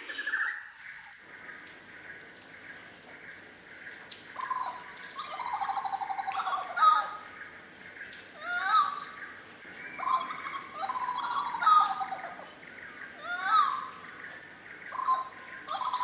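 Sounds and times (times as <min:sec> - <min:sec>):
bird song trills and whistles: 0:00.0 - 0:02.2, 0:08.1 - 0:16.0.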